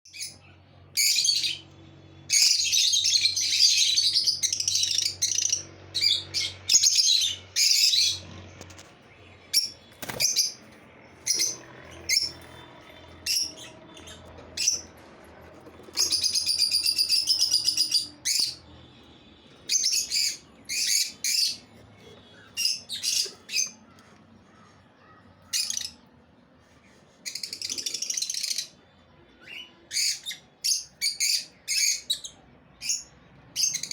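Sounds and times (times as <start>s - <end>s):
lovebirds chirping: 0.1s - 26.2s
lovebirds chattering rapidly: 2.4s - 18.7s.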